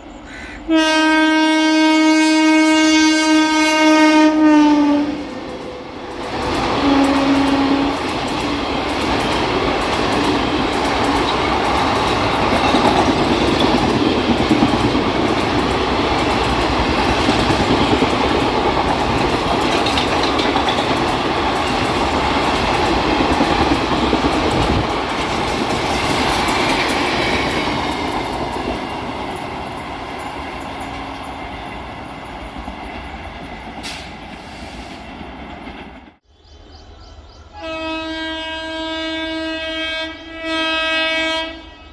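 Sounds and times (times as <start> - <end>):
train wheel-on-rail noise: 0.0 - 41.9.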